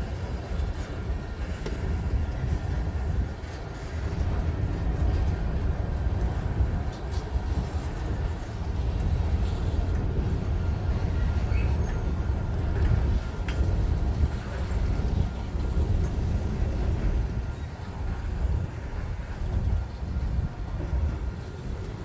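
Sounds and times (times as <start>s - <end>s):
freight train rumbling past: 0.0s - 22.0s
sharp clicks from train cars: 0.0s - 22.0s.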